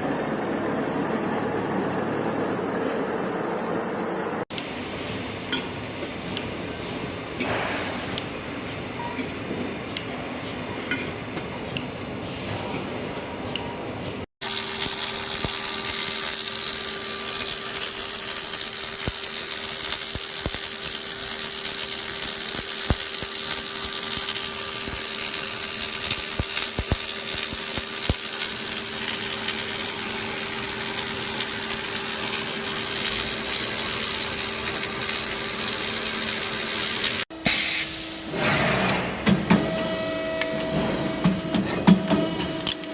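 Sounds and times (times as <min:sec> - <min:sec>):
machine hissing and humming: 0:00.0 - 0:04.5, 0:14.4 - 0:42.9.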